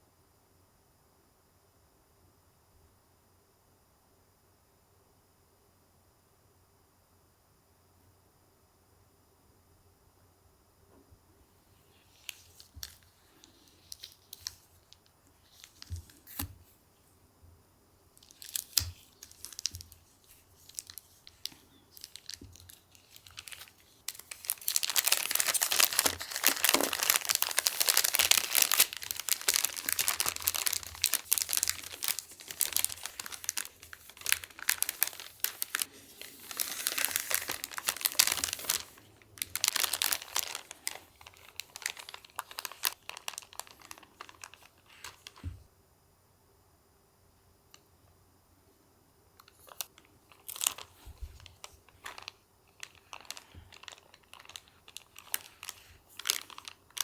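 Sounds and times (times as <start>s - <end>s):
wrapping material crinkling: 11.8s - 16.5s, 18.2s - 45.5s, 49.4s - 57.0s.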